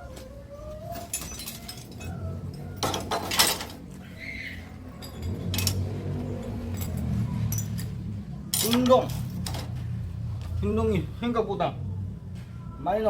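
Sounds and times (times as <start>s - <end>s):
scrap metal clinking and clattering: 1.0s - 4.0s, 4.7s - 9.9s.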